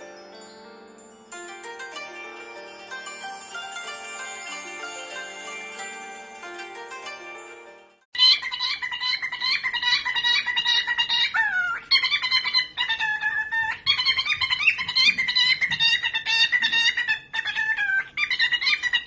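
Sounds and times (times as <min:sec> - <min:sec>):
parrot chattering: 0:08.2 - 0:19.0.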